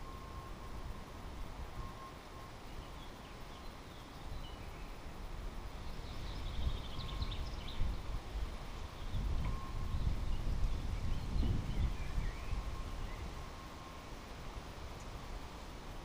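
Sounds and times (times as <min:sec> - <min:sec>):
small bird chirping and trilling: 0:05.8 - 0:08.0.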